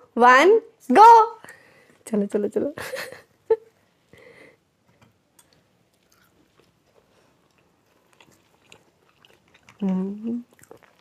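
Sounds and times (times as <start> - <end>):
people chewing food: 4.8 - 11.0.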